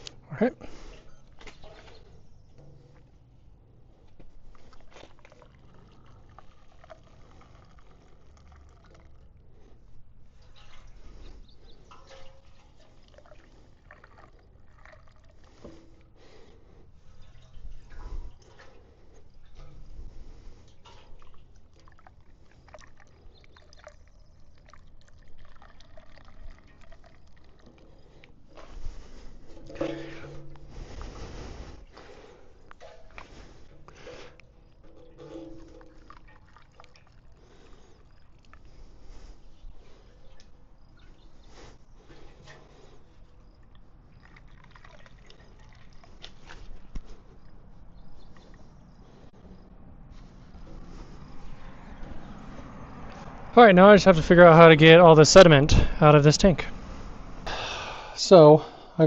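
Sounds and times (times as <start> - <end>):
liquid pouring and dripping: 4.5 - 9.8, 11.8 - 31.0, 32.0 - 40.9, 43.5 - 47.5.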